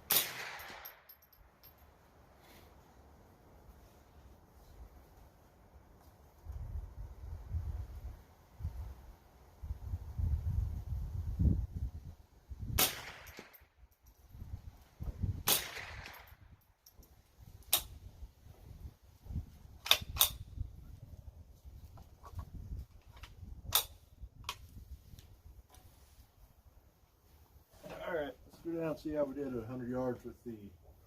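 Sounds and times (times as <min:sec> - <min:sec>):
rifle shots with echo: 0:00.1 - 0:01.0, 0:12.8 - 0:13.6, 0:15.5 - 0:16.3.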